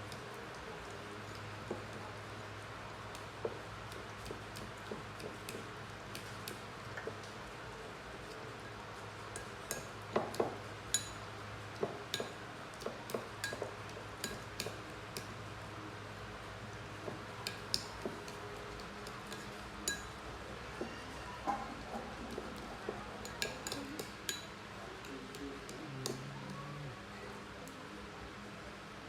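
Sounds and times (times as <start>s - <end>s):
hard objects clinking: 19.2s - 20.2s.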